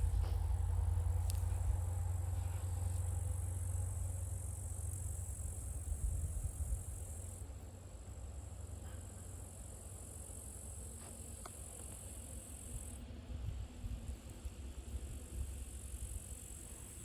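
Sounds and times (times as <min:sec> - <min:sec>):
insects trilling: 0:00.1 - 0:08.7.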